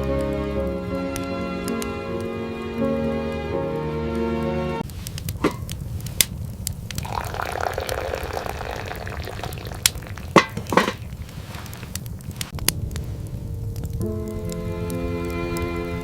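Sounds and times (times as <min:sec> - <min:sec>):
liquid pouring: 0:05.2 - 0:06.3, 0:06.9 - 0:12.0.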